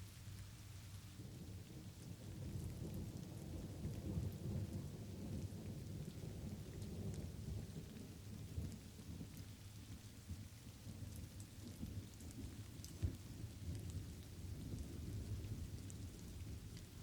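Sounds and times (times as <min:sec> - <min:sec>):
light rain: 0:00.0 - 0:17.0
raindrop ticks: 0:00.0 - 0:17.0
rolling thunder: 0:01.2 - 0:09.4.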